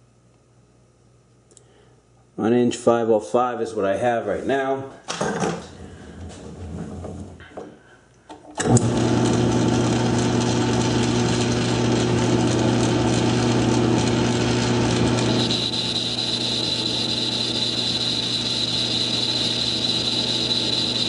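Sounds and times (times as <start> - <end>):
lathe motor hum with gear whine: 8.7 - 21.0
higher whine: 13.6 - 21.0.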